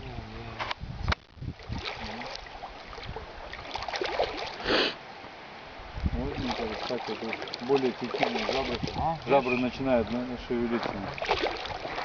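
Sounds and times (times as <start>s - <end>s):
water sloshing and splashing: 1.1s - 4.7s, 6.0s - 12.0s.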